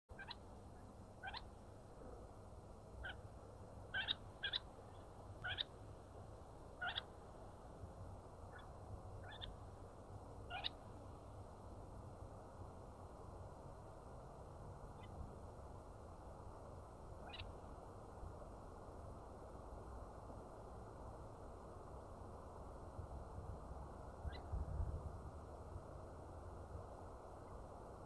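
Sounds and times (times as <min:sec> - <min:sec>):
bird sharp upward calls: 0:00.1 - 0:00.4, 0:01.2 - 0:01.5, 0:03.0 - 0:03.2, 0:03.9 - 0:05.7, 0:06.8 - 0:07.1, 0:08.5 - 0:09.6, 0:10.5 - 0:10.8, 0:17.2 - 0:17.5
steady low hum: 0:00.1 - 0:28.0.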